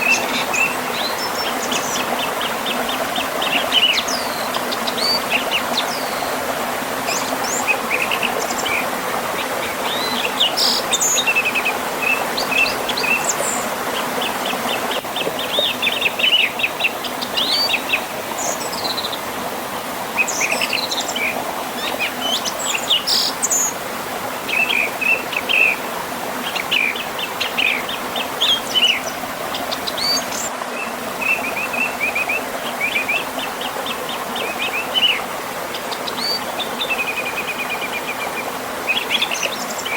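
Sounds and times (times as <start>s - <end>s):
river and waterfall rushing: 0.0s - 39.9s
songbirds chirping and trilling: 0.0s - 39.9s.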